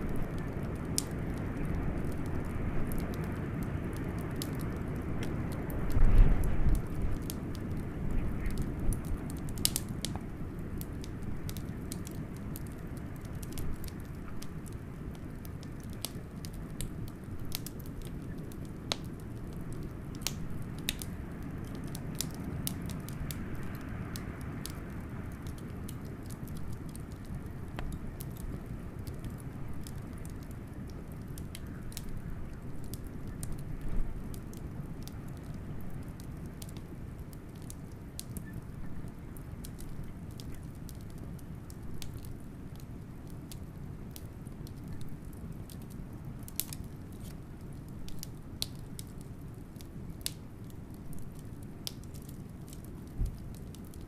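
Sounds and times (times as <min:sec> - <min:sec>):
blizzard wind rumble: 0:00.0 - 0:32.7
wood fire crackling: 0:00.0 - 0:54.0.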